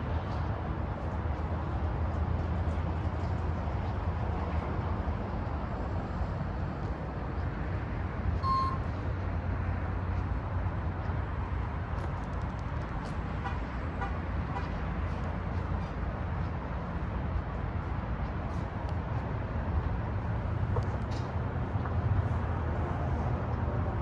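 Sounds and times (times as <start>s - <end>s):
short electronic beep: 8.4s - 8.9s.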